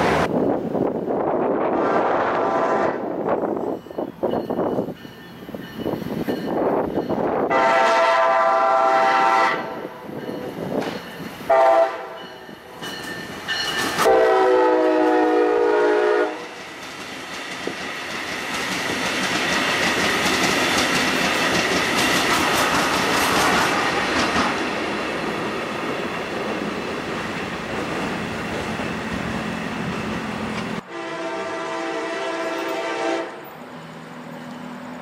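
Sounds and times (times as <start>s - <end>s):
train wheels rushing on rails: 0.0s - 35.0s
train horn blasts: 1.8s - 3.1s, 7.5s - 10.0s, 11.5s - 12.4s, 14.0s - 16.6s, 30.8s - 33.5s.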